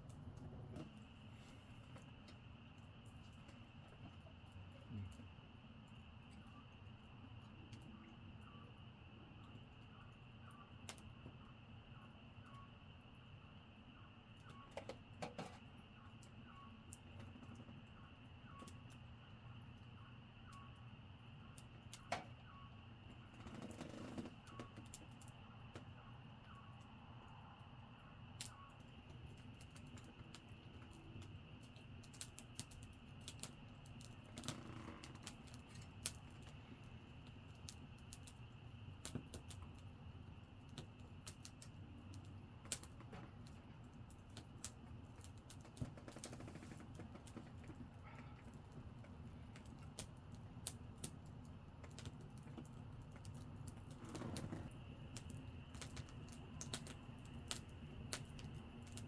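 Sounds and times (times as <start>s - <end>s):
campfire crackling and popping: 28.4s - 59.0s.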